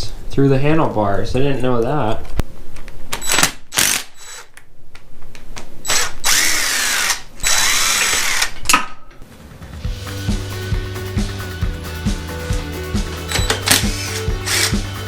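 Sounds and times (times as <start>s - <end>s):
cordless drill motor whine: 3.2s - 4.5s, 5.9s - 8.5s, 13.3s - 14.8s
background music with steady beat: 9.2s - 15.0s.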